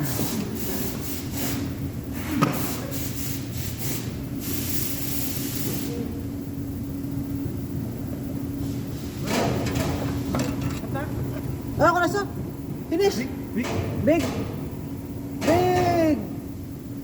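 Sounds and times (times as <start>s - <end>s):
welding arc crackling and hissing: 0.0s - 6.5s
steady low hum: 0.0s - 17.0s.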